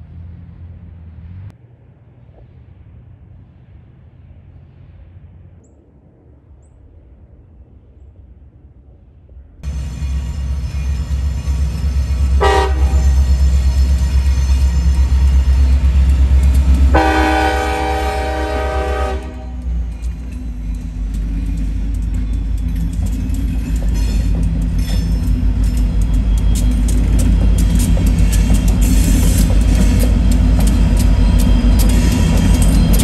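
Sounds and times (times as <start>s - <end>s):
diesel locomotives rumbling: 0.0s - 33.0s
locomotive horn blasts: 12.3s - 13.4s, 16.9s - 19.8s
wheels clattering over rail joints: 19.7s - 33.0s.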